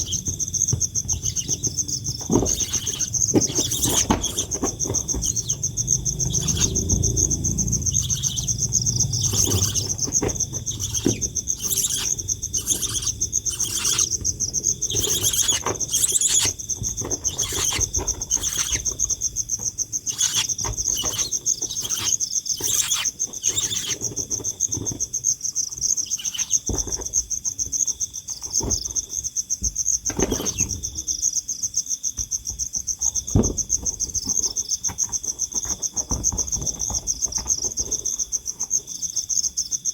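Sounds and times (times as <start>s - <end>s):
high-pitched insect trill: 0.0s - 28.2s.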